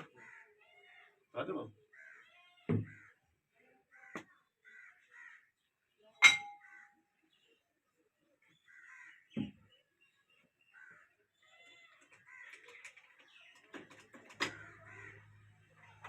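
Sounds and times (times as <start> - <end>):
crows cawing: 0.0 - 0.6, 1.8 - 3.3, 3.9 - 5.6, 6.6 - 7.0, 8.5 - 9.4, 10.7 - 11.2, 12.0 - 12.7, 14.4 - 15.6
metallic clang: 6.2 - 6.6.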